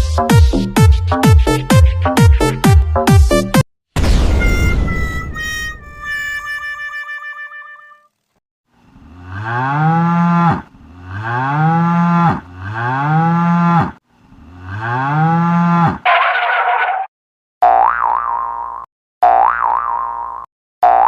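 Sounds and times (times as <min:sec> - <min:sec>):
brief sound effect: 0:04.0 - 0:06.5
cow mooing: 0:09.0 - 0:16.0.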